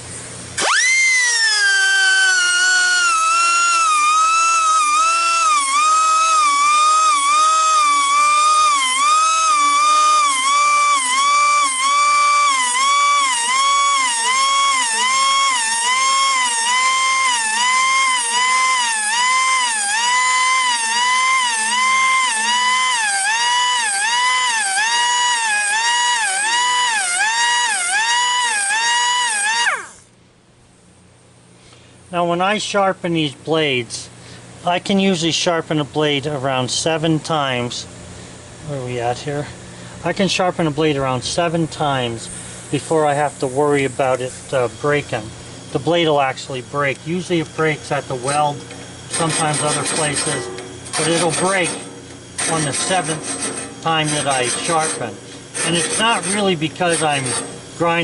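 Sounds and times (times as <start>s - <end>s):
air grinder whining: 0.6s - 30.1s, 42.2s - 58.0s.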